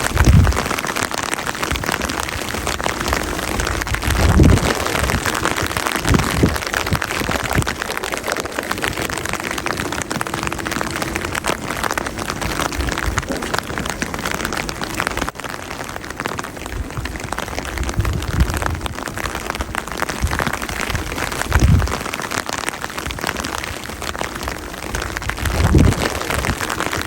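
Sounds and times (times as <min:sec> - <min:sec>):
low rumbles: 0:00.0 - 0:22.4, 0:23.6 - 0:27.0
rain pattering: 0:00.0 - 0:27.0.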